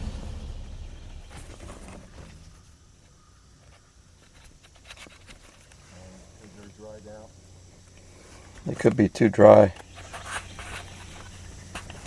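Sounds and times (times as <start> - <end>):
low rumble: 0.0 - 3.0
light clicks and rustles: 4.2 - 5.9.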